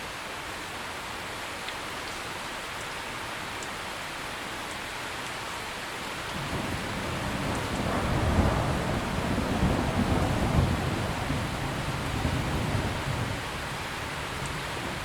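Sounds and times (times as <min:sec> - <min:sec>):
heavy rain: 0:00.0 - 0:15.0
rolling thunder rumble: 0:06.3 - 0:15.0.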